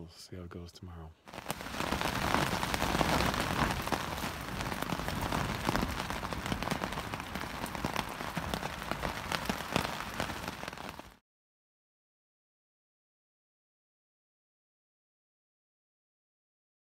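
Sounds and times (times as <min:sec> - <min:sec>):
rain on tent fabric: 0:01.2 - 0:11.2.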